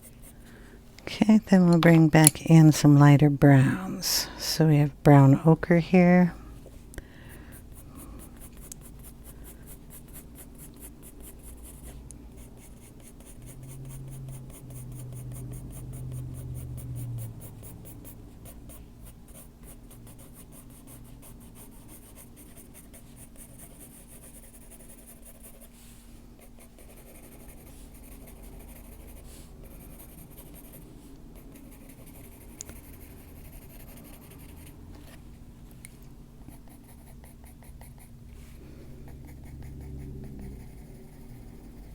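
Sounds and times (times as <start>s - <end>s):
faint steady hum: 0.0s - 41.9s
pencil scratching on paper: 7.5s - 25.7s, 26.4s - 30.8s, 31.4s - 34.8s, 36.5s - 38.1s, 39.1s - 41.9s.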